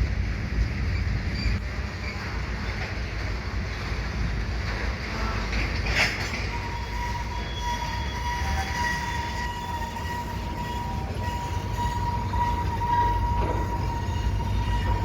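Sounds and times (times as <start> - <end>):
freight train rumbling past: 0.0 - 15.0
high-pitched wheel squeal: 6.3 - 15.0.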